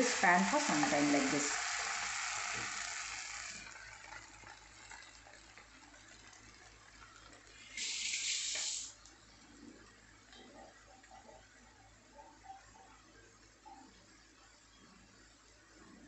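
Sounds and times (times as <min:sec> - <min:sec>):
food sizzling in a frying pan: 0:00.0 - 0:10.8
short hiss: 0:07.6 - 0:09.0.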